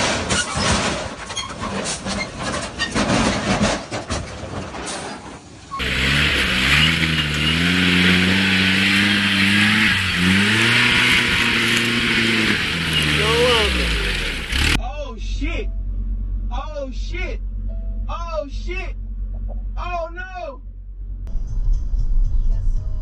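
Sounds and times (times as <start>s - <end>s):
road noise hiss: 5.8s - 14.8s
vehicle engine accelerating: 5.8s - 14.8s.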